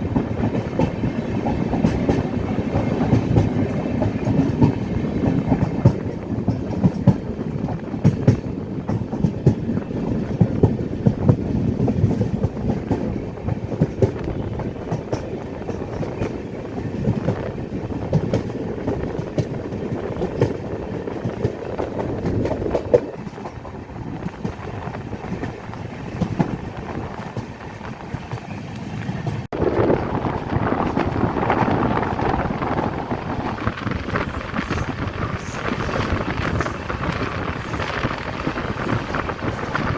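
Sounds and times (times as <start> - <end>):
train wheels clattering over rail joints: 0.0 - 29.5
train rumbling: 0.0 - 39.9
steady rushing noise: 28.7 - 39.9.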